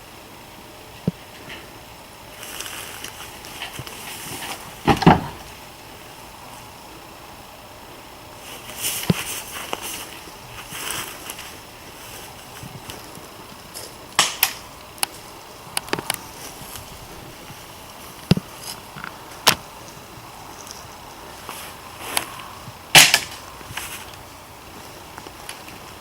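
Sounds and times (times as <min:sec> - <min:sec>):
airsoft gun shots: 0:04.8 - 0:05.5, 0:23.0 - 0:23.4.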